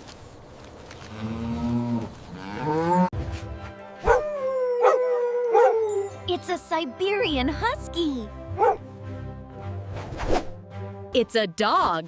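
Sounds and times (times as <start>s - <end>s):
cow mooing: 1.1s - 3.1s.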